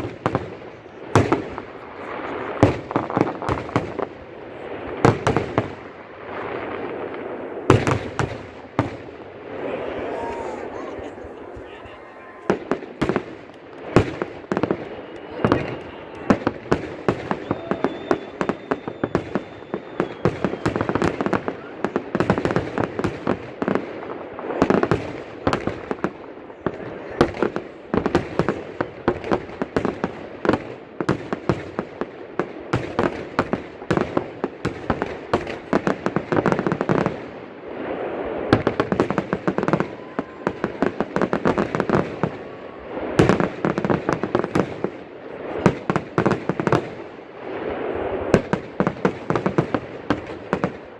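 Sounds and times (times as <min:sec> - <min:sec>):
fireworks bangs and crackling: 0:00.0 - 0:50.9.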